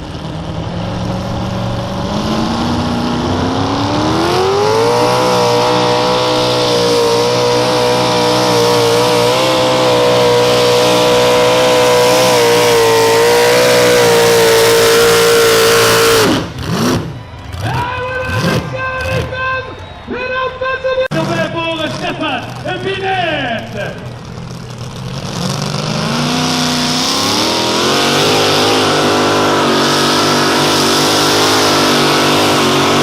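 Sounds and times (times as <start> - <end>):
tractor engine at full throttle: 0.0 - 20.2, 21.0 - 33.0.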